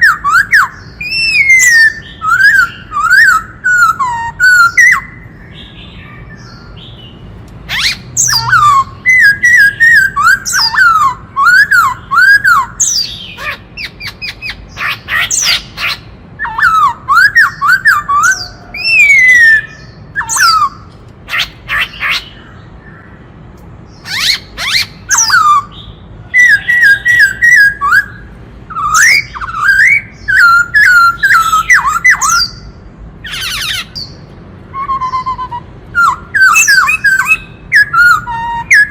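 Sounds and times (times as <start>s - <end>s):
bird whistled song: 0.0s - 23.2s, 23.9s - 38.9s
bird rasping squawks: 7.7s - 22.6s, 26.5s - 34.2s.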